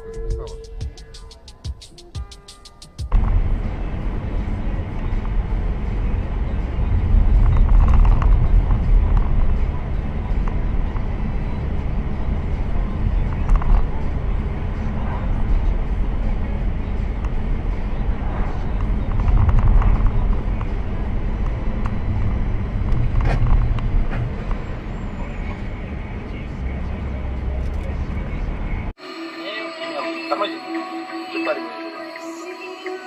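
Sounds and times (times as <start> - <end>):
car road and engine rumble: 3.1 - 29.0.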